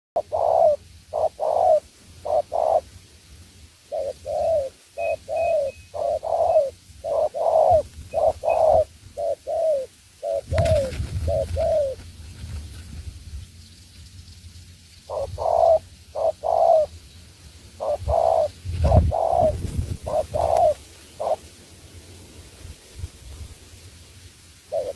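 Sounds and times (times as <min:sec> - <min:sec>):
dove cooing: 0:00.2 - 0:03.0, 0:03.9 - 0:12.8, 0:15.1 - 0:16.9, 0:17.8 - 0:21.6, 0:24.7 - 0:24.9
small bird chirps: 0:03.9 - 0:21.6.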